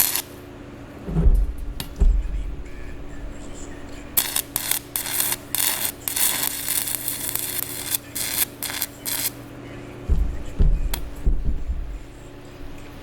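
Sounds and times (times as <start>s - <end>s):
welding arc crackling: 0.0s - 9.5s
steady electrical hum: 0.0s - 13.0s.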